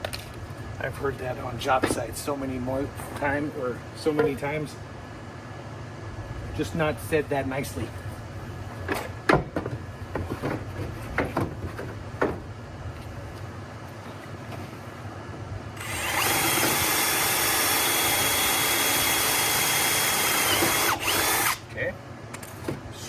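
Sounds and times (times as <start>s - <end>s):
power drill whining: 15.8s - 21.6s.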